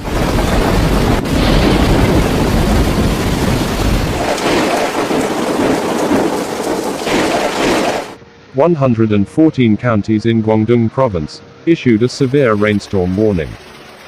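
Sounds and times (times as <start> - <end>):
heavy rain pouring: 0.0 - 8.2, 12.0 - 14.0
thunder rumbling: 0.0 - 8.2.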